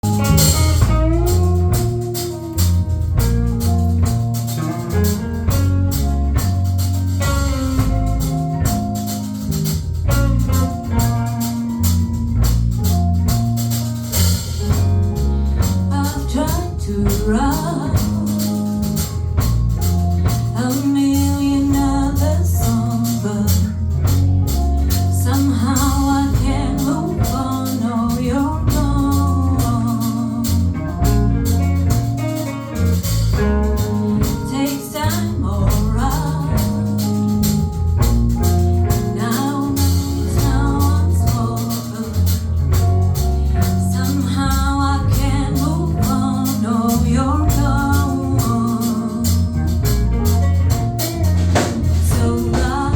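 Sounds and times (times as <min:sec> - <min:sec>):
drums and percussion: 0:00.0 - 0:44.2, 0:45.1 - 0:52.9
bass guitar: 0:00.0 - 0:52.9
person singing: 0:15.9 - 0:19.1, 0:24.8 - 0:31.2, 0:33.4 - 0:37.6, 0:38.8 - 0:42.6, 0:43.3 - 0:49.7, 0:51.3 - 0:52.9.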